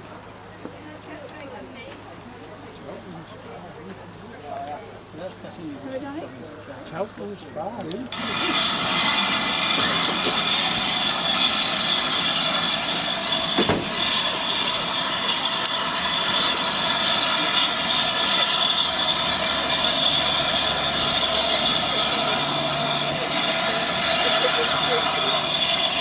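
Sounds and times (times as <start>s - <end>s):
steam hissing: 8.1s - 26.0s
sharp knock: 13.6s - 14.0s.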